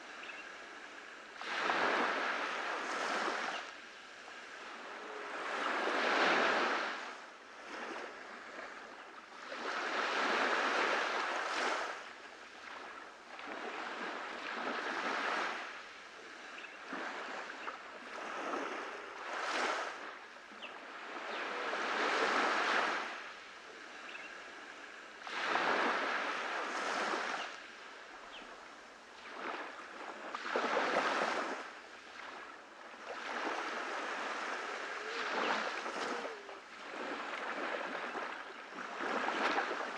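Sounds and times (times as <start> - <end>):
sea waves breaking on beach: 0.0 - 39.9.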